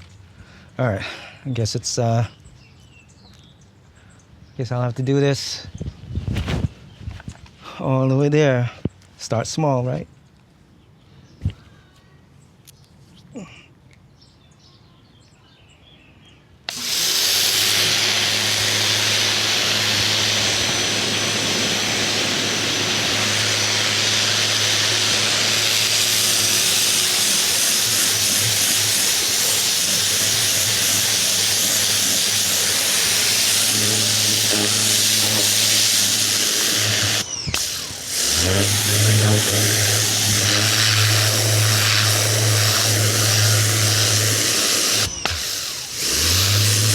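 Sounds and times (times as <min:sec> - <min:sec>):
pressure washer motor hum: 0:16.7 - 0:46.9
water jet spraying hiss: 0:16.7 - 0:46.9.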